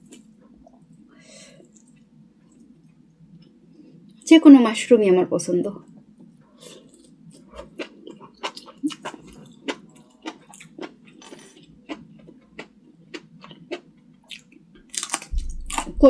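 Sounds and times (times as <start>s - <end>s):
person chewing food: 6.6s - 16.0s.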